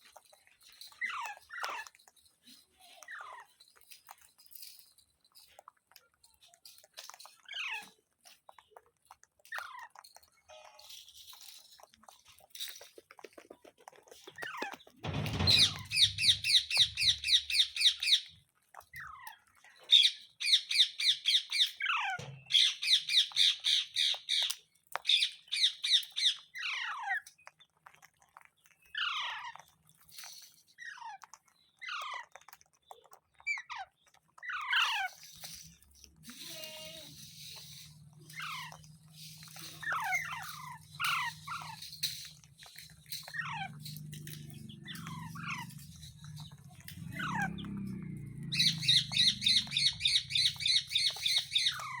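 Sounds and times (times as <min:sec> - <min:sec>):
parrot whistled calls: 0:48.5 - 0:52.0.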